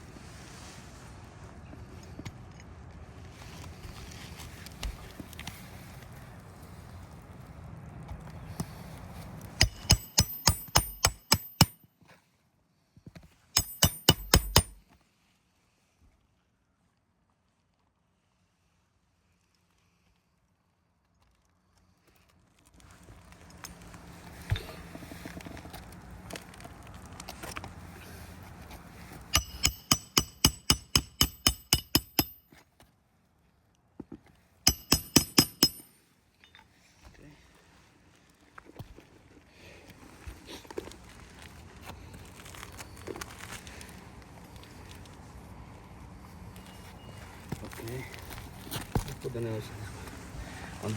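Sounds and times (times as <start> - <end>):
hammer striking roofing nails: 9.6 - 11.8, 13.6 - 14.8, 29.3 - 32.4, 34.7 - 35.9.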